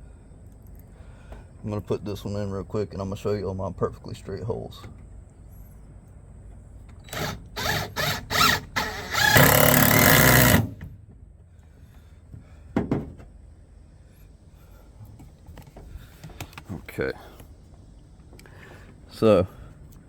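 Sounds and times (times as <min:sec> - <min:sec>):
power drill driving a screw: 0:07.0 - 0:10.8.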